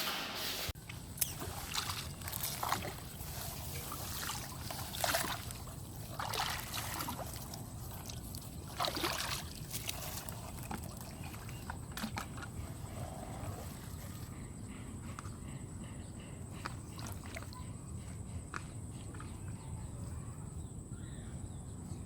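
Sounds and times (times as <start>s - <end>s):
water splashing: 0.8s - 12.5s.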